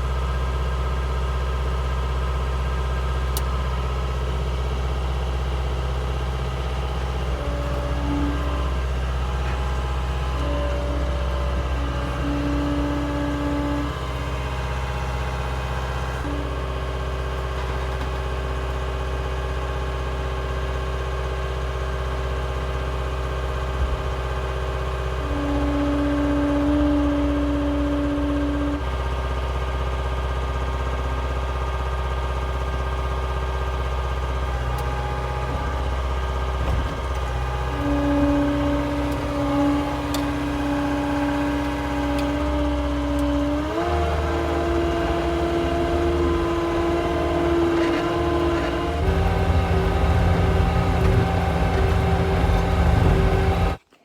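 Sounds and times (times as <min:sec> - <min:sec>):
diesel engine running: 0:00.0 - 0:53.9
whining tone: 0:07.2 - 0:16.5, 0:36.6 - 0:53.8.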